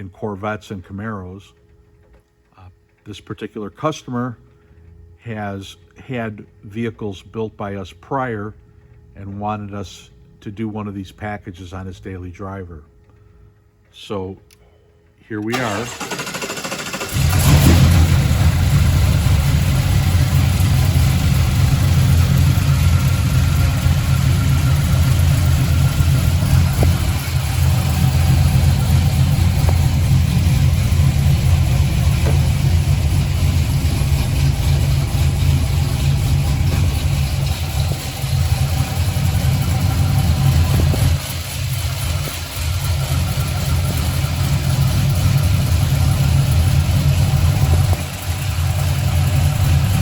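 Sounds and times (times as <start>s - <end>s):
truck engine droning: 15.5s - 50.0s.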